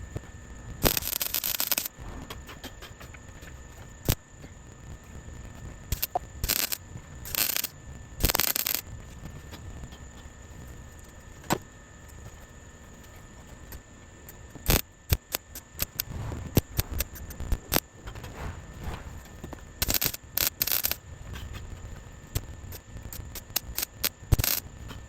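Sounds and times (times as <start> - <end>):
welder crackling bursts: 0.8 - 2.0, 5.9 - 8.8, 14.6 - 21.0.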